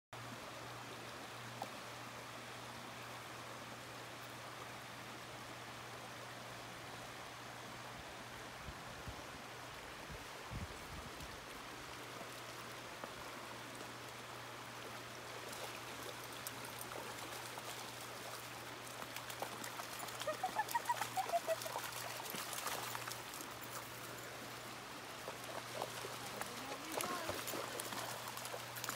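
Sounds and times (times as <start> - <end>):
stream babbling over stones: 9.2 - 28.9
dogs splashing through water: 15.3 - 28.9.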